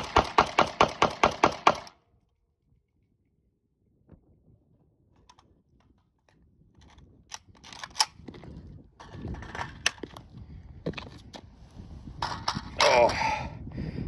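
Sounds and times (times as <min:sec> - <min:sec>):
metallic rifle clicks: 0:06.8 - 0:08.2.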